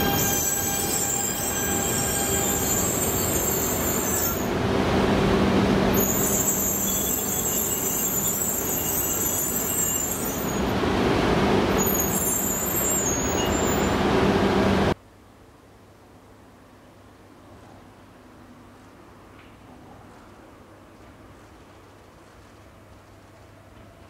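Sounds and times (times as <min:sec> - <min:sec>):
high-pitched wheel squeal: 0:00.0 - 0:04.5, 0:05.9 - 0:10.7, 0:11.8 - 0:14.1
train rolling with rumble: 0:00.0 - 0:15.0.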